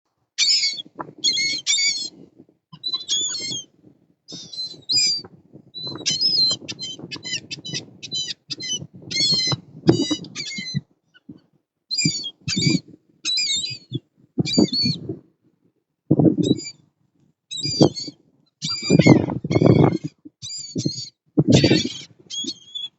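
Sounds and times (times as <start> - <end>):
wind buffeting microphone: 0.8 - 11.4, 12.0 - 15.3, 16.1 - 16.7, 17.6 - 22.6
birds squawking: 2.9 - 3.7, 5.8 - 10.6, 20.9 - 22.9.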